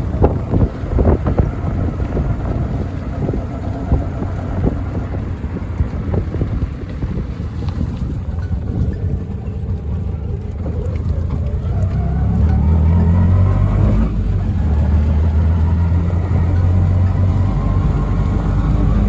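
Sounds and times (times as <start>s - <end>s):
auto-rickshaw rumbling: 0.0s - 19.0s
wind buffeting microphone: 0.0s - 19.0s.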